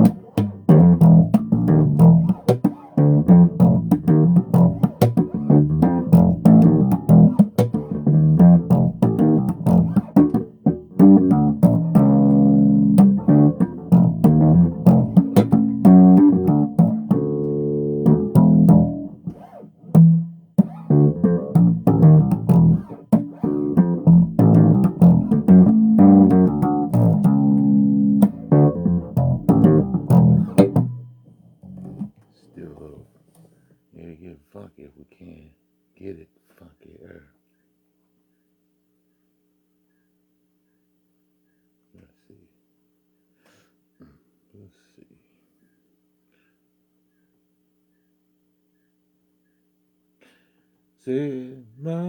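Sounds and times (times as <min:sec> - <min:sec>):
funky electric bass guitar: 0:00.0 - 0:32.2.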